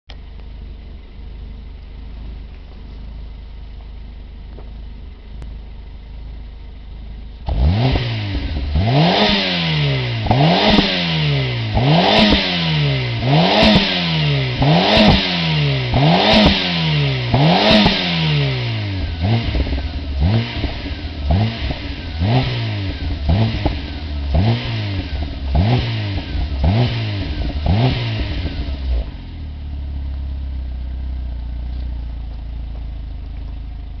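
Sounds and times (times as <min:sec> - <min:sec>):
car engine revving: 0:07.4 - 0:29.4.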